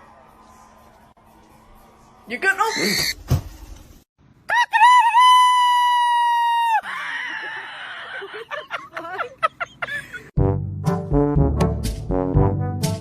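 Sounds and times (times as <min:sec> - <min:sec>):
animal high-pitched cry: 0:02.7 - 0:03.2
brass music: 0:10.4 - 0:13.0.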